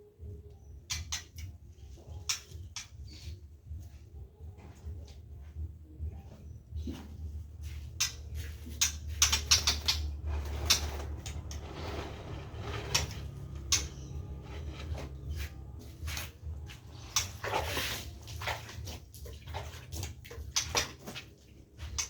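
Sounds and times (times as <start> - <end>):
steady low hum: 3.4 - 19.2
scraping rustles: 6.9 - 22.0
irregular clicks and knocks: 8.0 - 15.7.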